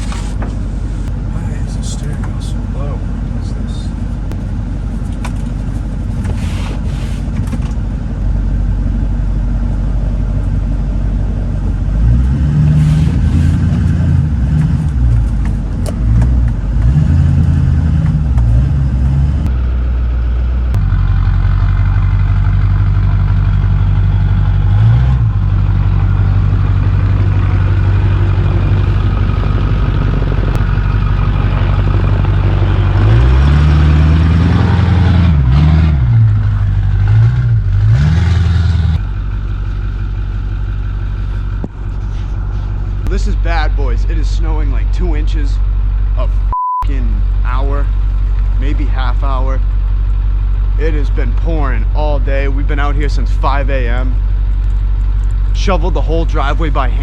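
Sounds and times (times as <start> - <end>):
diesel truck engine revving: 0.0 - 57.0.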